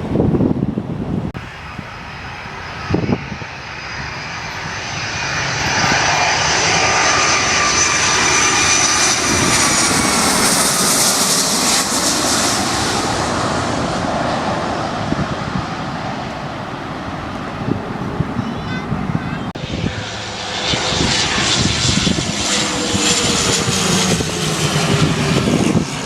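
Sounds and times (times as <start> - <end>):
jet engines passing: 0.0 - 26.0.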